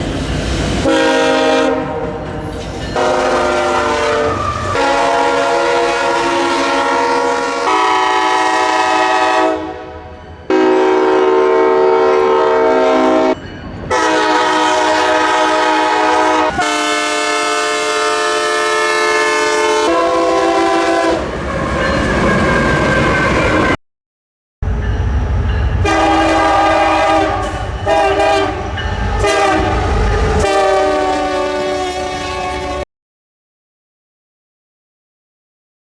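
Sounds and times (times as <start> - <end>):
train rumble: 0.0 - 8.8, 11.6 - 23.8, 24.6 - 32.8
train horn blasts: 0.8 - 2.2, 3.0 - 21.3, 25.8 - 32.8.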